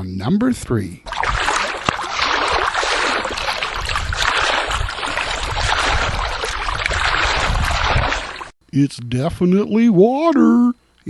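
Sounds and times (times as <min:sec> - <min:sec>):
water running: 0:01.1 - 0:08.6.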